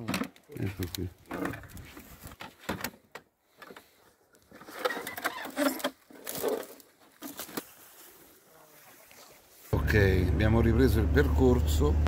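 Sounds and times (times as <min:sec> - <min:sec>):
rustling through brush: 0:03.8 - 0:09.8.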